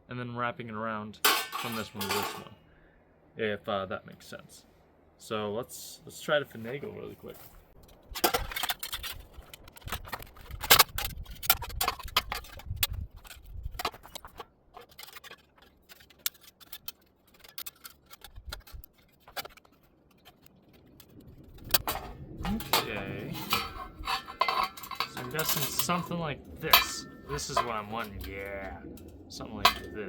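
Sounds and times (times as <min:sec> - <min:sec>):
wire clicking and scraping on metal: 0:07.3 - 0:30.0.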